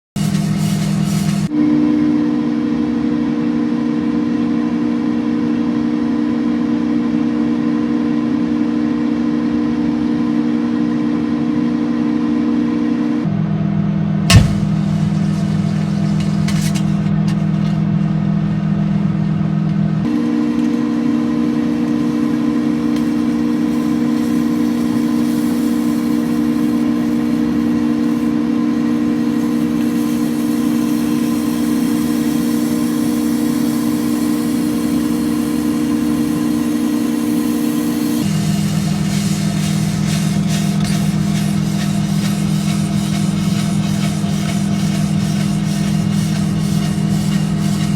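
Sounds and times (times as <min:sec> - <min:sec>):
microwave oven humming: 0:00.2 - 0:47.9.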